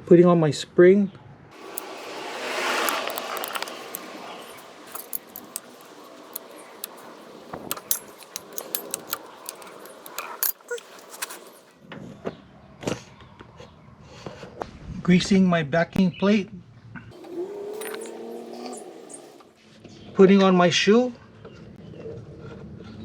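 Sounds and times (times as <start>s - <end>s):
metallic clicks of brake springs: 1.6s - 11.6s, 17.8s - 18.8s.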